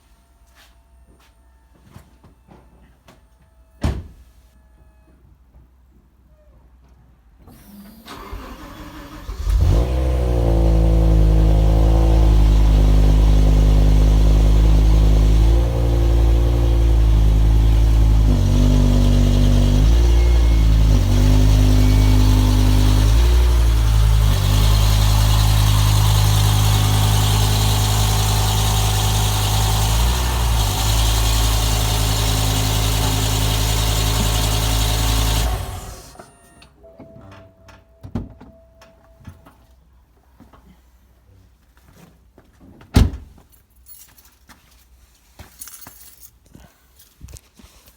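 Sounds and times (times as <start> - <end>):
car engine starting and idling: 7.6 - 36.8.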